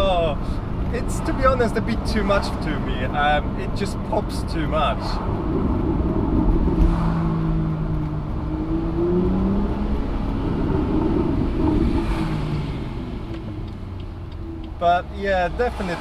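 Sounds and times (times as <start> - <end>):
car engine and exhaust: 0.0 - 16.0.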